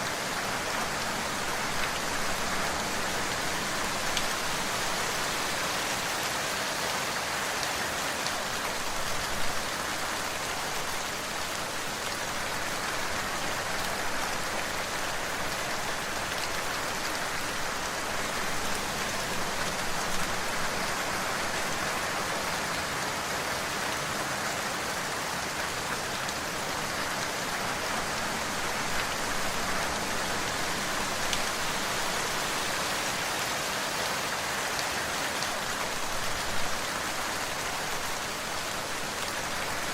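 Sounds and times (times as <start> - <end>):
rain hissing on a surface: 0.0 - 39.9.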